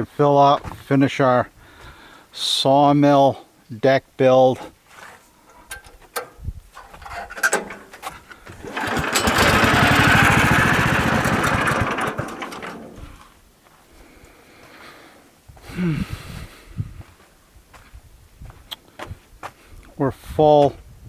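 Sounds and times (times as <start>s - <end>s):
portable sawmill running: 5.7s - 13.2s.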